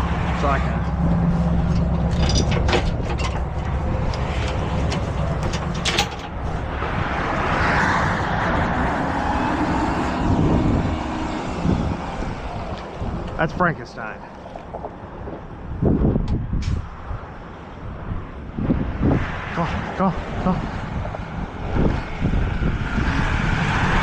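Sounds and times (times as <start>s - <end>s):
diesel truck engine running: 0.0s - 6.8s
metal clicks: 1.7s - 6.4s.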